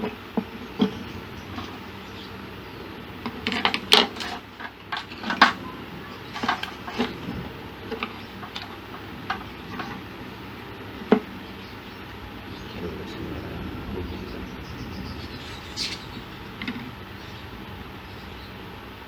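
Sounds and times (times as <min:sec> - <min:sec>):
small parts and tools clattering: 0:03.3 - 0:05.6, 0:06.3 - 0:10.0.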